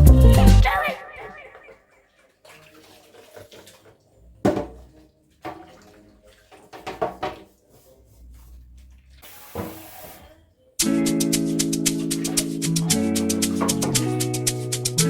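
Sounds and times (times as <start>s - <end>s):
kitchenware clinking and knocking: 4.4s - 5.7s, 6.5s - 7.6s, 13.0s - 14.5s.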